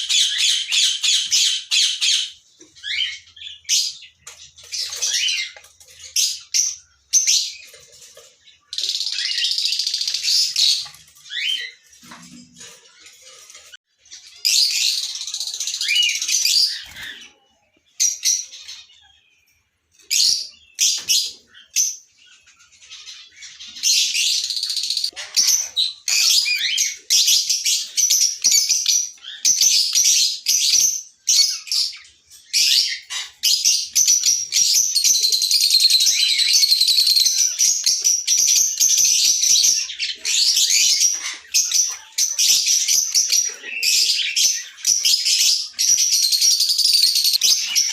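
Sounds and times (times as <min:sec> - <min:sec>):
lovebirds chirping and chattering: 0:00.0 - 0:47.9.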